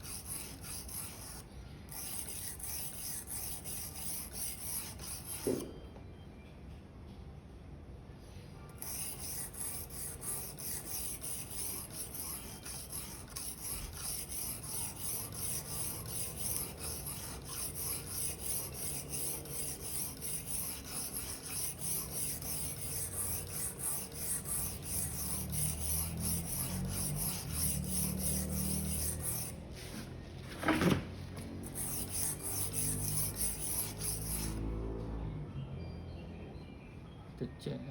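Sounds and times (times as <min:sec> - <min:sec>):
knife scraping on whetstone: 0:00.0 - 0:05.6, 0:08.8 - 0:30.0, 0:31.6 - 0:34.6.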